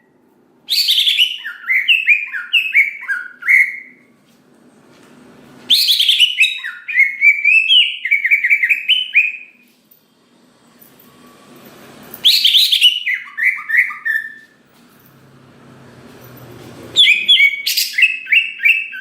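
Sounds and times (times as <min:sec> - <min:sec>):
bird singing chirps and whistles: 0:00.7 - 0:04.0, 0:05.7 - 0:09.6, 0:12.2 - 0:14.5, 0:17.0 - 0:19.0.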